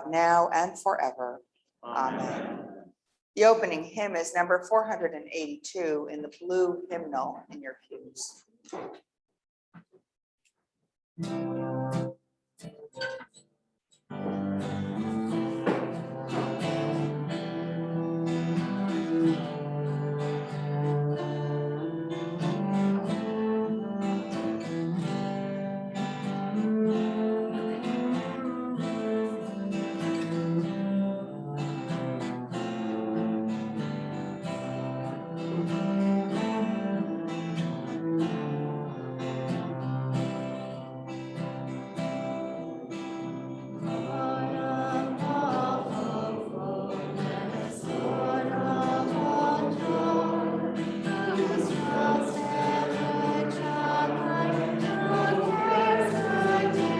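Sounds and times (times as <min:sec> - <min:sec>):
acoustic guitar playing: 0:00.0 - 0:02.8, 0:11.2 - 0:56.9
people singing: 0:02.0 - 0:02.8, 0:43.6 - 0:56.9.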